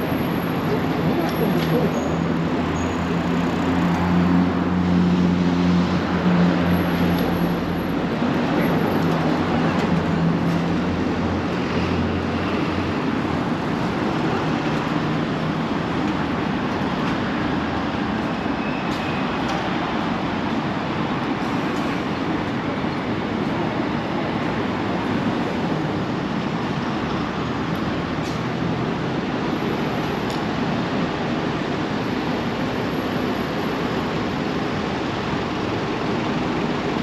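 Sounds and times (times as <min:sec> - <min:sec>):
city street traffic: 0:00.0 - 0:37.0
heavy vehicle engine hum: 0:00.0 - 0:37.0.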